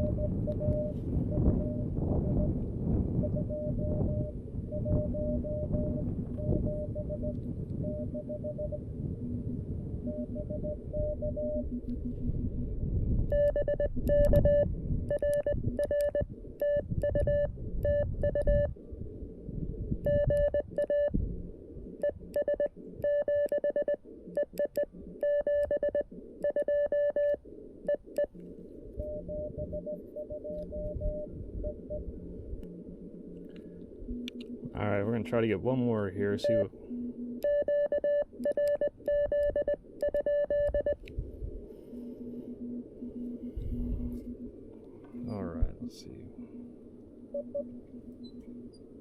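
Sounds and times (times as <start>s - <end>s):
morse code keyed tone: 0.0s - 2.5s, 3.2s - 8.8s, 10.0s - 11.8s, 13.3s - 18.7s, 20.0s - 21.1s, 22.0s - 28.3s, 29.0s - 32.0s, 36.3s - 36.7s, 37.4s - 41.0s
receiver hiss: 13.2s - 49.0s.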